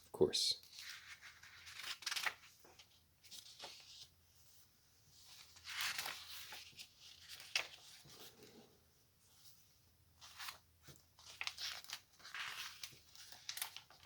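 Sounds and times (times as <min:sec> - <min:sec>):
paper pages rustling: 0:00.6 - 0:08.7, 0:09.3 - 0:14.0.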